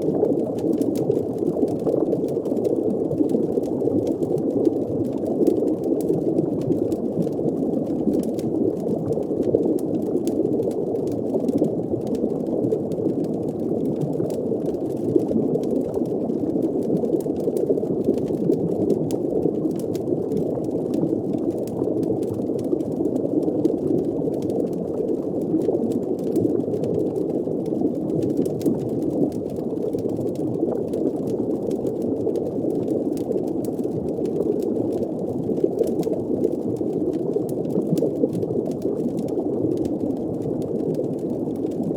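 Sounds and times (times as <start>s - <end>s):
faint small crackles: 0.0s - 41.9s
underwater bubbling: 0.0s - 41.9s.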